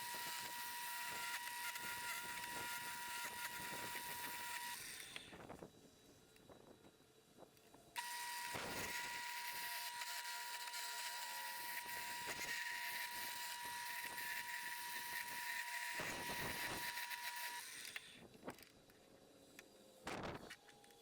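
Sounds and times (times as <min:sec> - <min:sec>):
wood lathe whining: 0:00.0 - 0:05.3, 0:08.0 - 0:18.0
tool cutting wood hiss: 0:08.0 - 0:18.3.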